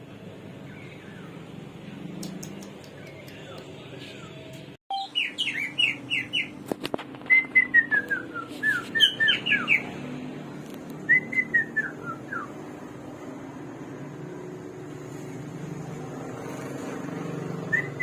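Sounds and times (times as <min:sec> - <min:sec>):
songbird whistling: 0:04.9 - 0:06.6, 0:07.2 - 0:09.9, 0:11.0 - 0:12.6, 0:17.6 - 0:18.0.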